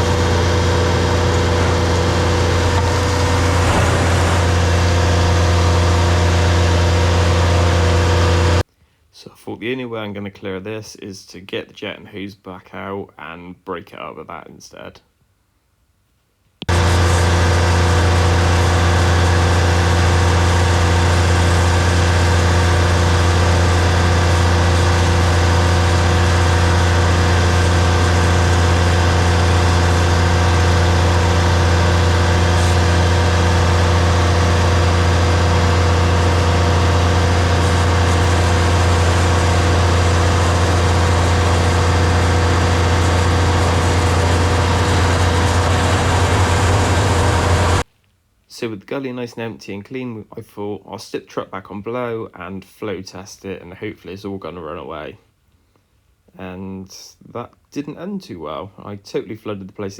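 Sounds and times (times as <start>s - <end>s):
truck engine and pump droning: 0.0s - 8.6s, 16.7s - 47.8s.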